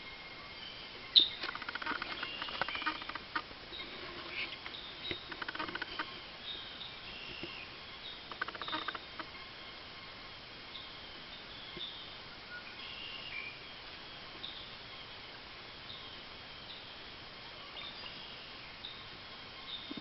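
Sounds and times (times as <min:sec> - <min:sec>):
faint high bird calls: 0:00.4 - 0:13.8
rapid clicking bird twitter: 0:01.2 - 0:03.4, 0:04.3 - 0:06.2, 0:08.3 - 0:09.3.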